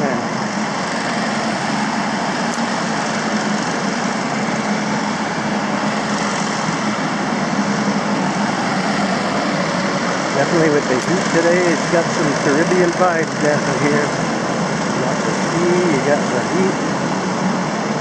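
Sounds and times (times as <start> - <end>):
engine and traffic noise: 0.0 - 18.0.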